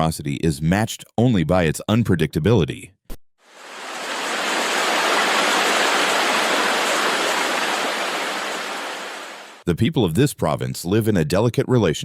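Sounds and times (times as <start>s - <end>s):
rushing water: 3.5s - 9.6s.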